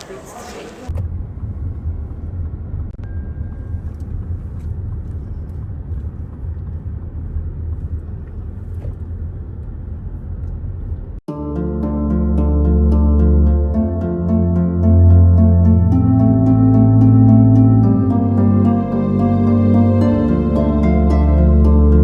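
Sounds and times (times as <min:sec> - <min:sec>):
car rumble inside cabin: 0:00.8 - 0:11.2.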